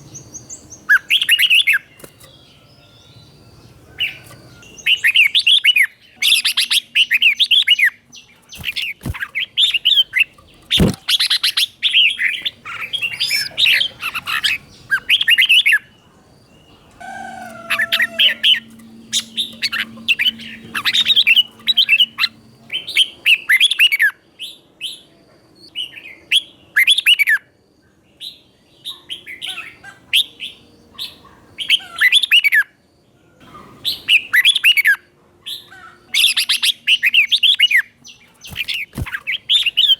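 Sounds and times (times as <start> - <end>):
bulbul singing warbled phrases: 3.0 - 24.0.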